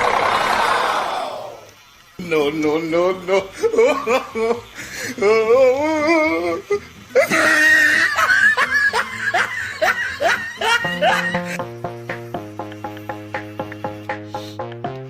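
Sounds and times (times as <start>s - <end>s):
music: 1.6s - 15.0s
person laughing: 3.6s - 11.6s.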